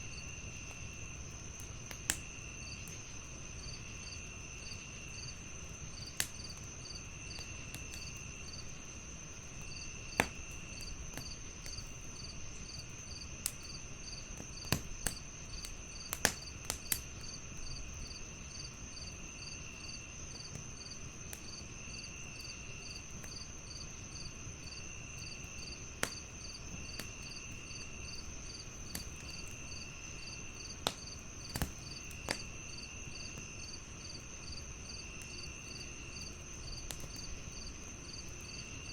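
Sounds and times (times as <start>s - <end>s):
crickets chirping: 0.0s - 38.9s
fireplace pops and crackles: 0.4s - 3.3s, 4.7s - 18.0s, 24.3s - 38.7s.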